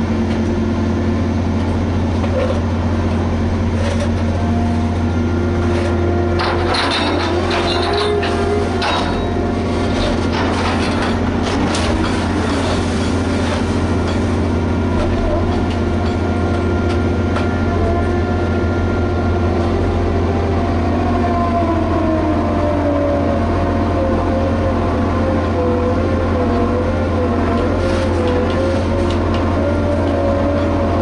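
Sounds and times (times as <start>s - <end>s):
diesel engine running under load: 0.0s - 31.0s
metallic clanks: 6.4s - 12.9s.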